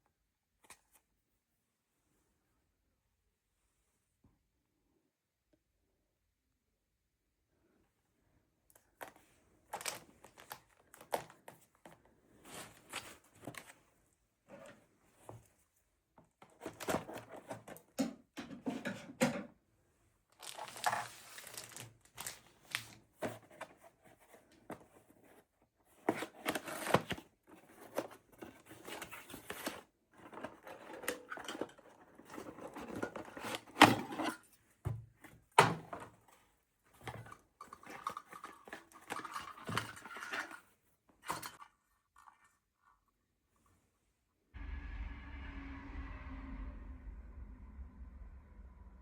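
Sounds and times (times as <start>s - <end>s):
rustling and crinkling: 8.8s - 17.8s, 20.4s - 43.8s.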